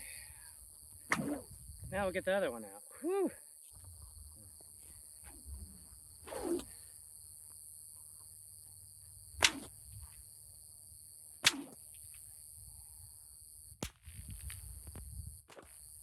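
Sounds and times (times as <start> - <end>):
whip cracking: 1.1 - 1.5, 9.4 - 9.7, 11.4 - 11.8, 13.8 - 14.2.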